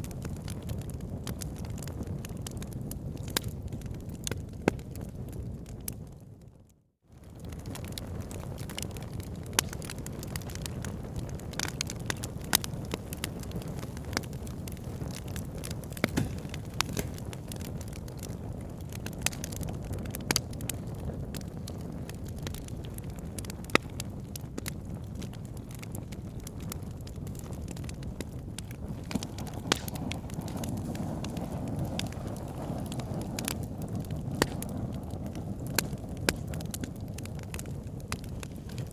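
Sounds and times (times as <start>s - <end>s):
fire burning in fireplace: 0.0s - 38.9s
fire crackling and popping: 0.0s - 38.9s.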